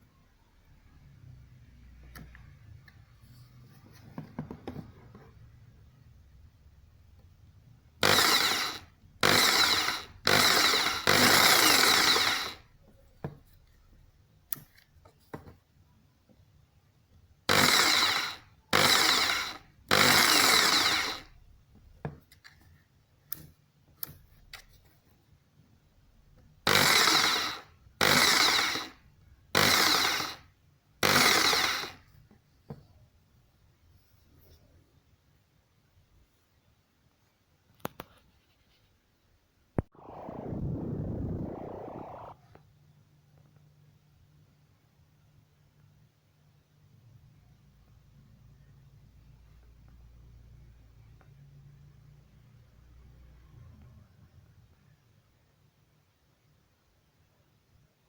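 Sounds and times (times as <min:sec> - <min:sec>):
jigsaw bursts: 0:08.0 - 0:12.7, 0:17.5 - 0:21.4, 0:26.7 - 0:30.4, 0:31.0 - 0:32.1.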